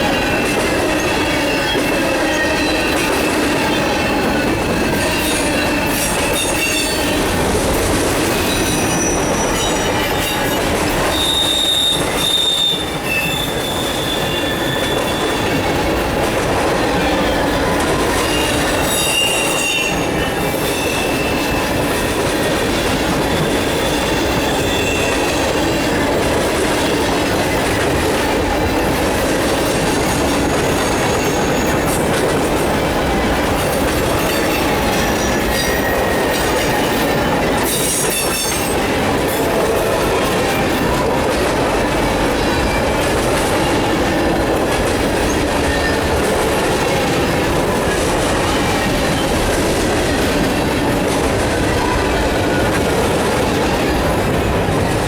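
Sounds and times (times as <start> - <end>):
steel wheels rumbling on rail: 0.0 - 55.0
high-pitched wheel squeals: 8.3 - 15.6.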